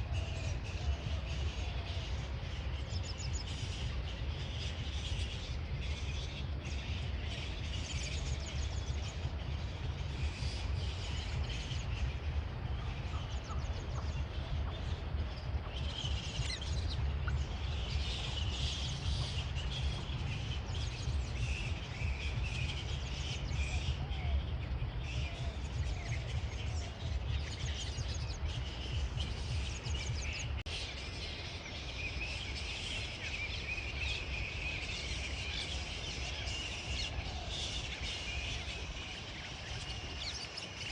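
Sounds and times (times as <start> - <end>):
birds chirping and singing: 0.0 - 40.9
steady low rumble: 0.0 - 40.9.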